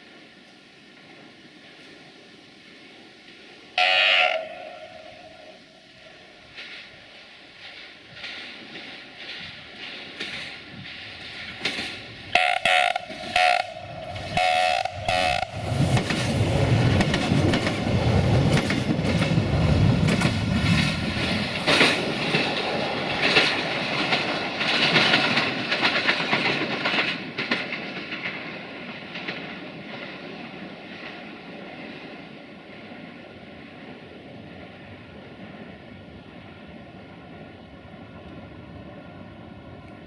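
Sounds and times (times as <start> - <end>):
train horn blasts: 3.8 - 5.7, 12.3 - 15.6
wheels clacking over rail joints: 6.4 - 32.9.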